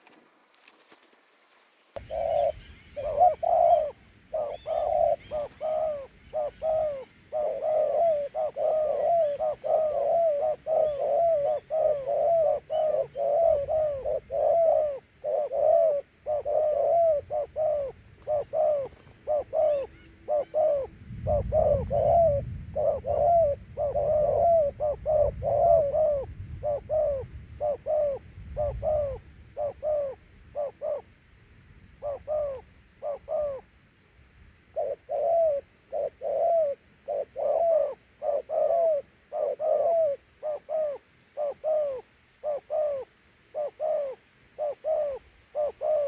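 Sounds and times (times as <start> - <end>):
dove cooing: 2.0 - 31.2, 31.9 - 33.7, 34.7 - 46.0.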